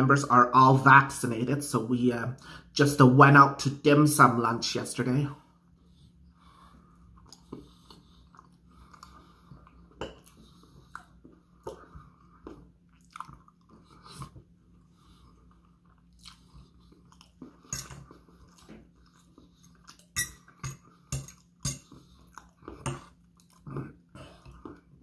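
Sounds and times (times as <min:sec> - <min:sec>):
person chewing and smacking: 0:06.7 - 0:25.0.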